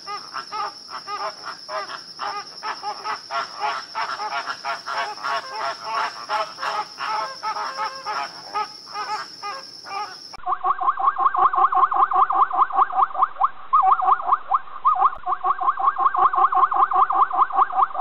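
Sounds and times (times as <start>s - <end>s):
animal calls: 0.0s - 13.1s.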